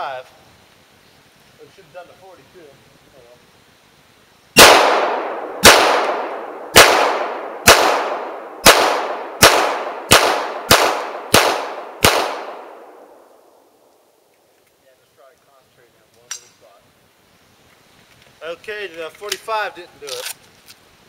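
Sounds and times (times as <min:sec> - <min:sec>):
pistol shots echoing: 0:04.6 - 0:13.3.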